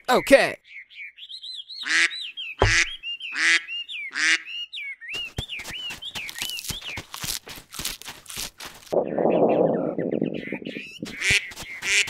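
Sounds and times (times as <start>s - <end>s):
duck quacking: 1.8s - 4.5s, 11.1s - 12.0s.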